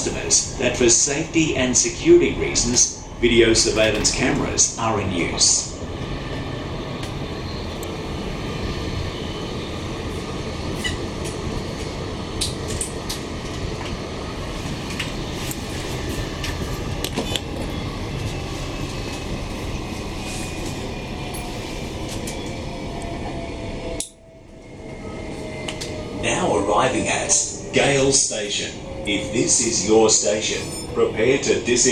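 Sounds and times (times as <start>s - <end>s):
train wheels rumbling: 0.0s - 31.9s.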